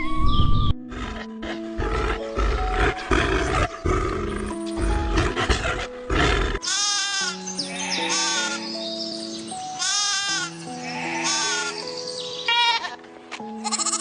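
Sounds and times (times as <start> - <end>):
backing music: 0.0 - 14.0
big cat roaring: 0.9 - 6.6
bleats: 6.6 - 8.6, 9.8 - 11.8, 13.6 - 14.0.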